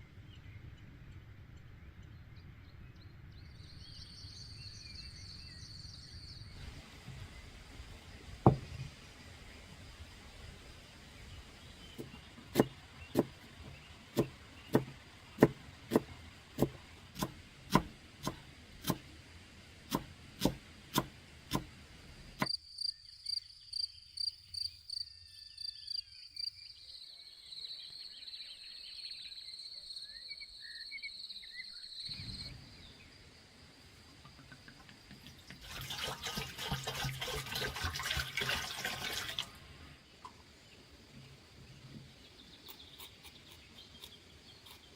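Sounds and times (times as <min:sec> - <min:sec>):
rushing splashing water: 0:35.2 - 0:39.9.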